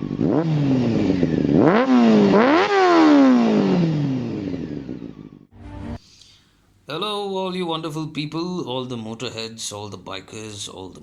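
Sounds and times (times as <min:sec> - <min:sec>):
motorcycle engine revving: 0:00.0 - 0:05.5.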